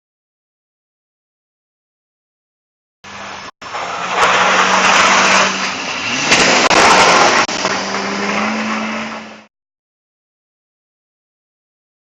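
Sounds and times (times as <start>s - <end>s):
loud rushing noise: 3.0s - 9.5s.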